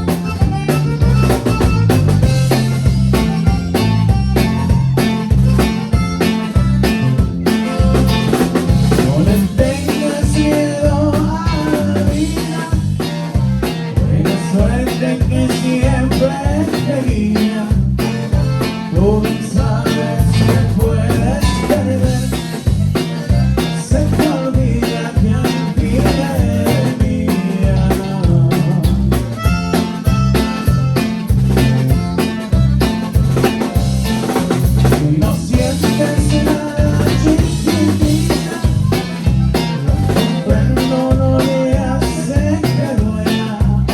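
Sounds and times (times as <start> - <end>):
live band playing: 0.0 - 43.9.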